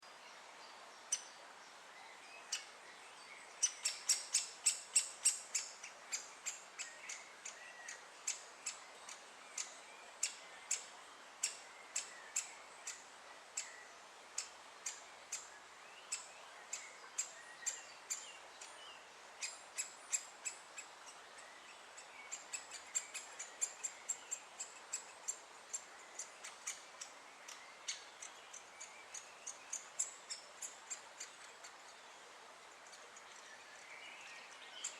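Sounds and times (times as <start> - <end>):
woodpecker calling: 3.6 - 13.8, 14.4 - 32.0.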